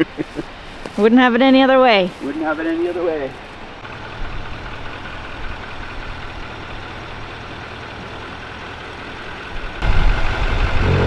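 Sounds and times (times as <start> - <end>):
diesel truck engine idling: 3.8 - 11.0
rough engine rumble: 3.8 - 11.0.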